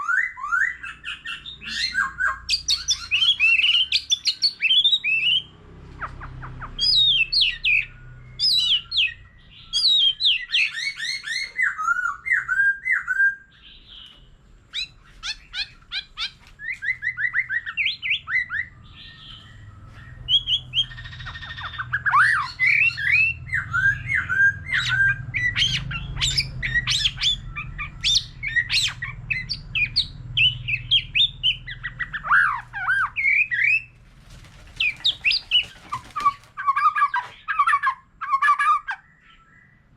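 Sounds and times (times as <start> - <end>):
bird singing whistles and trills: 0.0 - 5.5, 6.5 - 34.0.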